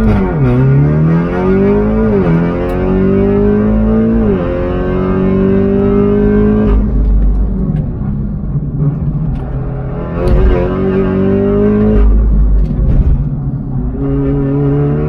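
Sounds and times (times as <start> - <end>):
rough noisy rumble: 0.0 - 2.5, 6.6 - 14.8
car engine accelerating: 0.0 - 15.0.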